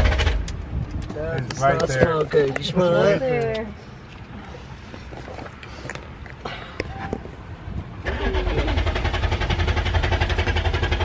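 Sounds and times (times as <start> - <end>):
engine starter cranking: 8.0 - 11.0.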